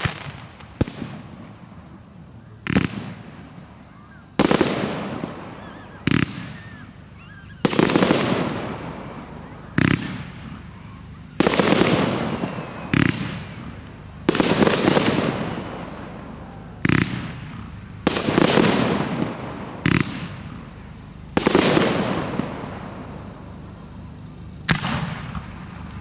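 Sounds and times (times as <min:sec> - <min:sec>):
firework bursts: 0:00.0 - 0:26.0
firework launch bangs: 0:24.7 - 0:26.0.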